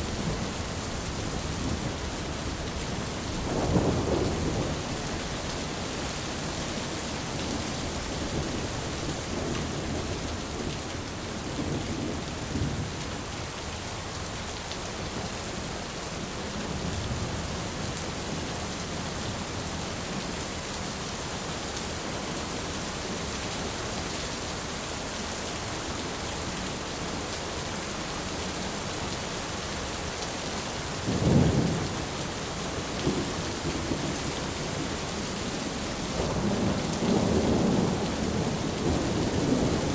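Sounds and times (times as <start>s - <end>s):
steady rain: 0.0s - 39.9s
low rolls of thunder: 3.3s - 5.1s, 36.2s - 39.9s.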